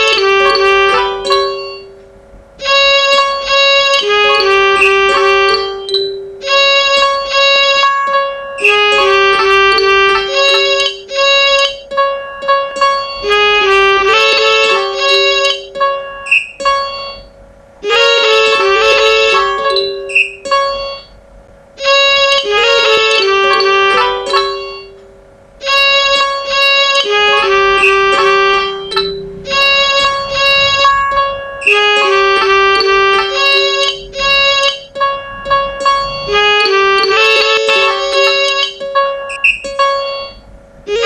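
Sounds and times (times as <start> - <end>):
computer-generated midi music: 0.0 - 41.0.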